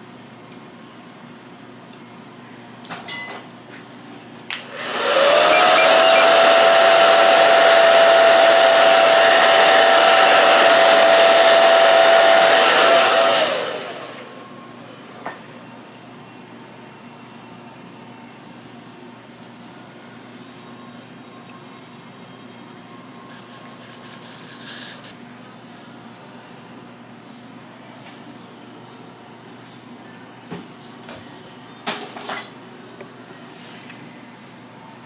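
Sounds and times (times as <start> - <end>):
hair dryer running: 4.6 - 14.9.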